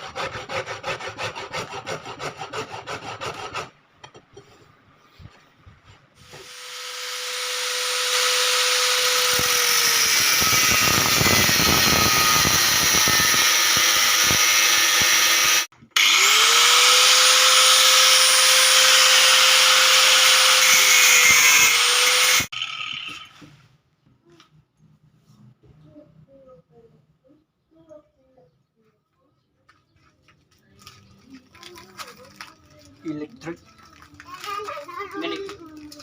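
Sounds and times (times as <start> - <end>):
power drill motor running: 6.2 - 23.3
grinding cutting noise: 6.3 - 23.3.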